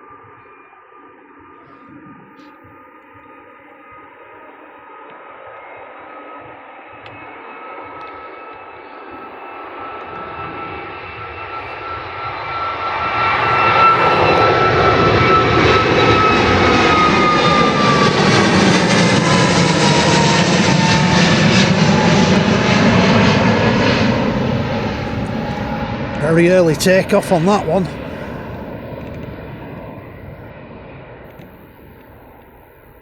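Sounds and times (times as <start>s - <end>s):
jet engines at takeoff thrust: 0.0s - 33.0s
high fan whine: 20.7s - 30.5s.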